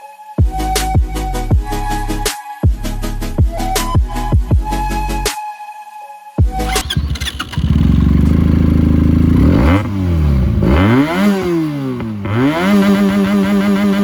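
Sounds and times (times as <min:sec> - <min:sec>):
motorcycle engine revving: 0:06.6 - 0:14.0.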